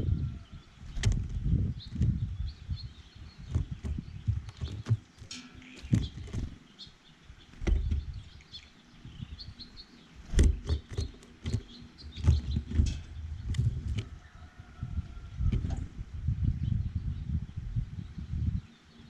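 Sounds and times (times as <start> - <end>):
small birds chirping: 0.0 - 19.0
birds pecking and tapping: 0.8 - 2.3, 3.0 - 8.8, 10.1 - 14.6.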